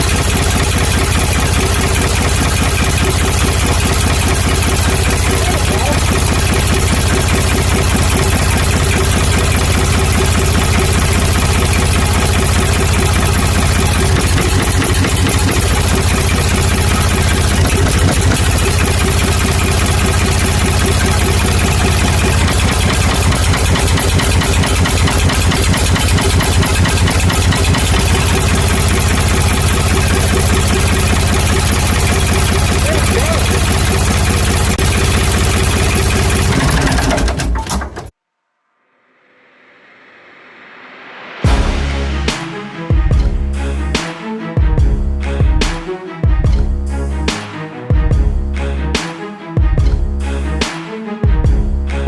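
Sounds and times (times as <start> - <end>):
diesel engine idling: 0.0 - 38.1.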